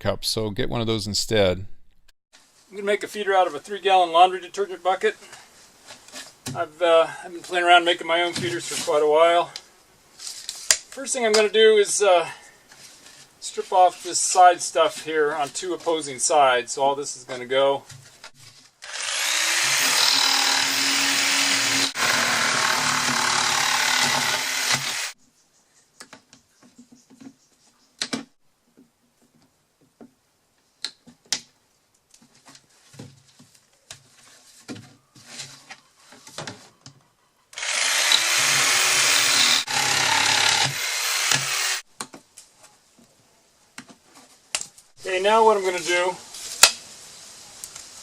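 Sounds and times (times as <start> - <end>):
power tool cutting plastic: 18.8 - 25.2, 37.6 - 41.8.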